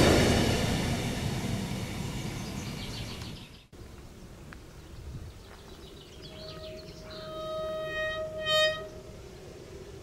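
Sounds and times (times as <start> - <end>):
birds chirping: 2.1 - 10.0
approaching train high tone: 6.3 - 10.0.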